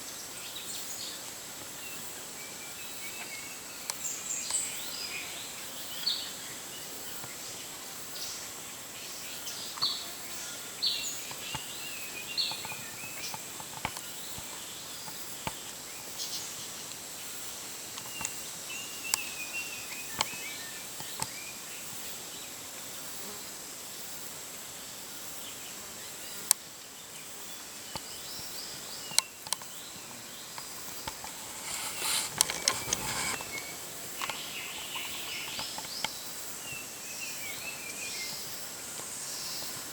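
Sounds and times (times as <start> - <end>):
rustling: 30.6 - 34.7
sharp clicks: 31.0 - 34.4.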